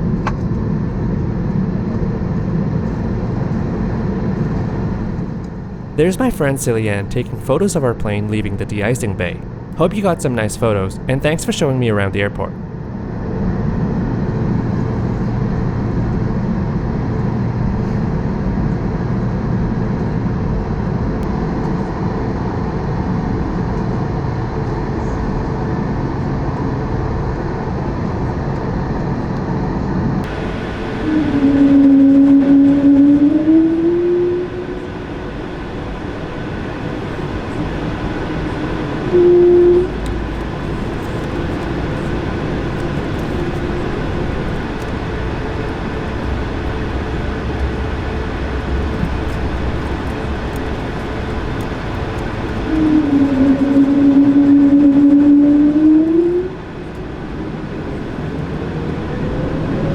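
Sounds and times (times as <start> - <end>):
aircraft cabin engine hum: 0.0 - 59.9
short tone: 6.0 - 12.5, 39.0 - 40.8
rising engine whine: 29.7 - 59.9.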